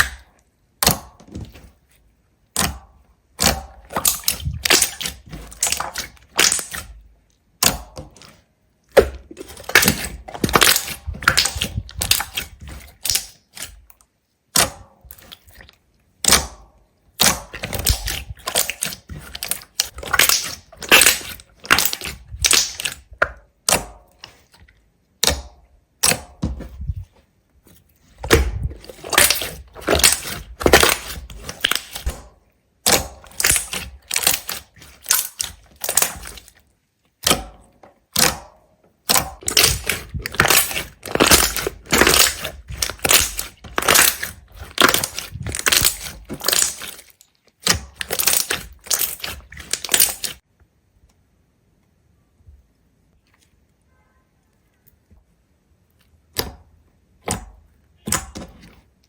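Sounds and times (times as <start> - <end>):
crisp crunching and crackling: 9.0 - 13.9, 17.2 - 23.1, 27.8 - 32.2, 32.9 - 36.7, 39.1 - 50.4.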